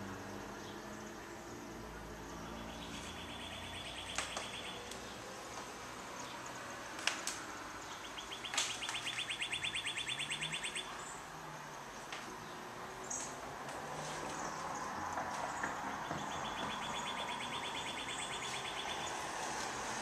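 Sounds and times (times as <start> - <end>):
bird chirping trill: 2.3 - 5.2, 7.8 - 11.2, 15.9 - 19.3
sharp clicks: 4.0 - 5.7, 8.4 - 9.3.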